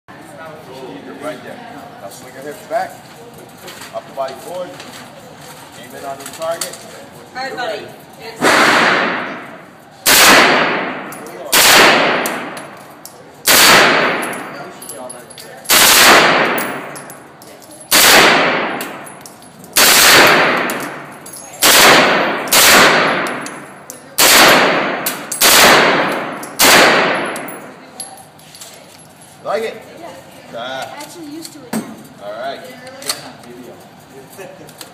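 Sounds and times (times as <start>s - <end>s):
gunshots with echo: 8.4s - 12.6s, 13.5s - 14.4s, 15.7s - 16.9s, 17.9s - 19.0s, 19.8s - 23.6s, 24.2s - 27.5s.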